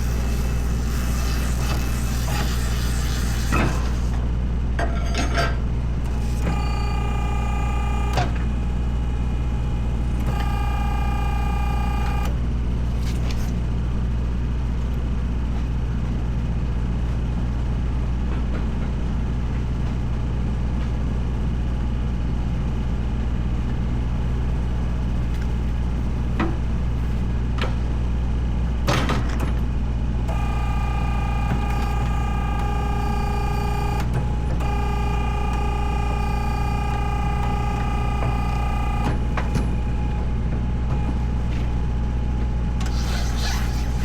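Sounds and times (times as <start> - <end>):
whining tone: 30.3 - 41.5, 42.8 - 44.0.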